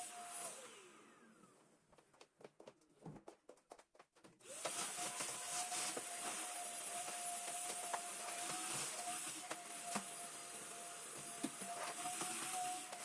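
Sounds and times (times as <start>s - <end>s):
vacuum cleaner motor: 0.0s - 1.7s, 4.4s - 13.0s.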